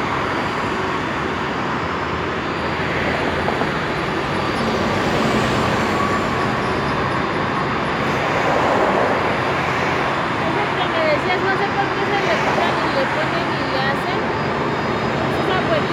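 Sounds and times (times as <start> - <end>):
rushing engine noise: 0.0 - 15.9.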